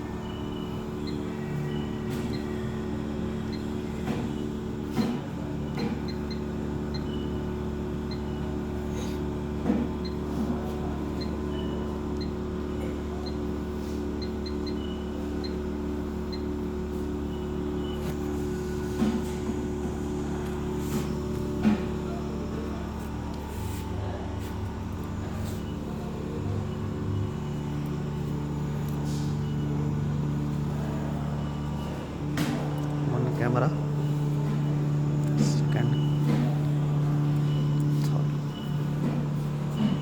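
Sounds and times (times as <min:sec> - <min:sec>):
electrical machine hum: 0:00.0 - 0:40.0
faint high beeps: 0:35.5 - 0:40.0.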